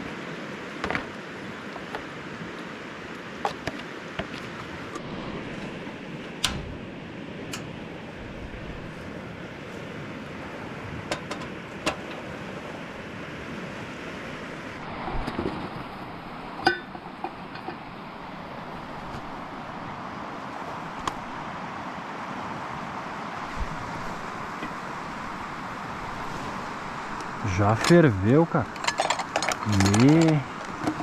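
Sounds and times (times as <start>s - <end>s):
camping stove burning: 0.1s - 15.0s, 23.4s - 31.0s
metallic clink: 28.7s - 30.4s.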